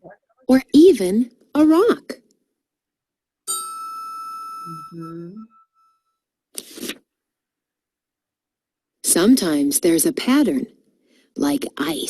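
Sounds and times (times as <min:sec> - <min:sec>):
steady ringing tone: 0:03.5 - 0:06.2.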